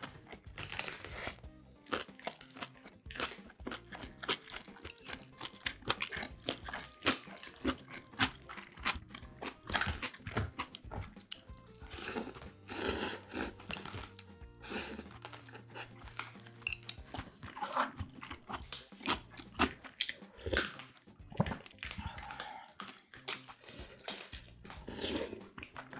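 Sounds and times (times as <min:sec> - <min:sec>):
crunchy chewing with wet clicks: 0:00.0 - 0:12.6, 0:13.2 - 0:25.9.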